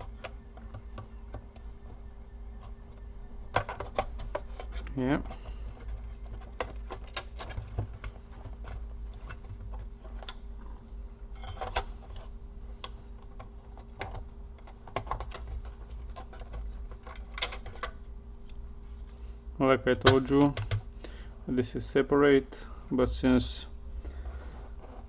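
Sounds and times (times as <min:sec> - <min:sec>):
steady low hum: 0:00.0 - 0:25.0
laptop parts clicking: 0:02.6 - 0:10.4, 0:11.4 - 0:18.6.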